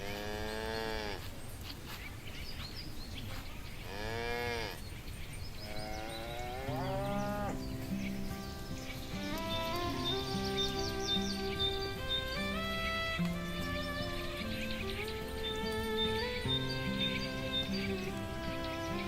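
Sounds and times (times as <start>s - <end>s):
cattle mooing: 5.7s - 7.7s.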